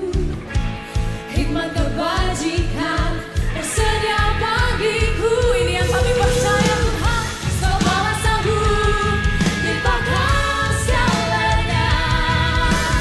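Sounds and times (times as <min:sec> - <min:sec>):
pop band with bass and drums: 0:00.0 - 0:13.0
person singing: 0:01.0 - 0:13.0.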